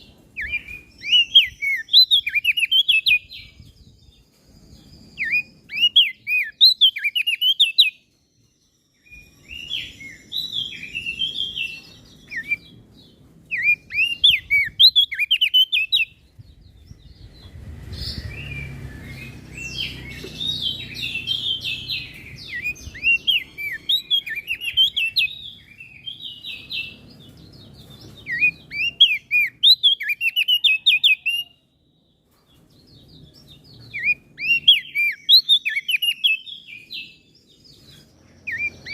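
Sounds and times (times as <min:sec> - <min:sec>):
bird singing high chirping notes: 0:00.0 - 0:38.9
low rumble: 0:16.1 - 0:23.3.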